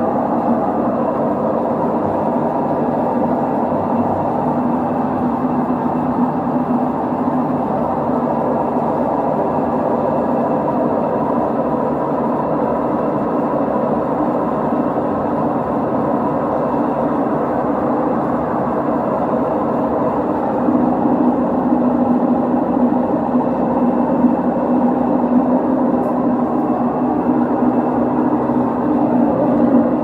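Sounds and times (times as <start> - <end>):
washing machine rumbling: 0.0 - 30.0
steady hum: 11.3 - 30.0.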